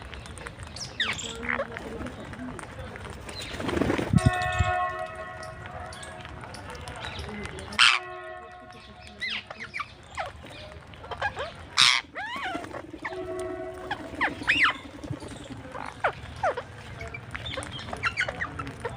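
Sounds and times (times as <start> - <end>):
birds chirping: 0.0 - 18.9
loud harsh bird squawk: 7.8 - 8.4, 11.8 - 15.0.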